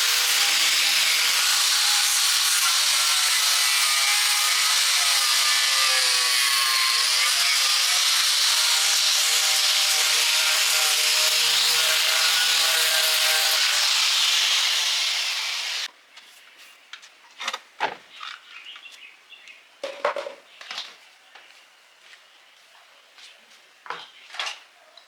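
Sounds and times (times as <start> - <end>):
power tool scraping: 0.0 - 15.9.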